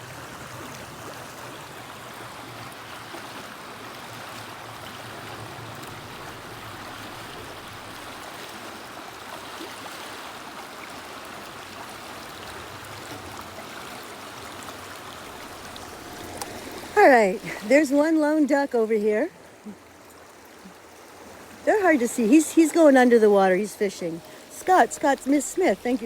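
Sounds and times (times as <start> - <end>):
river water flowing: 0.0 - 26.0.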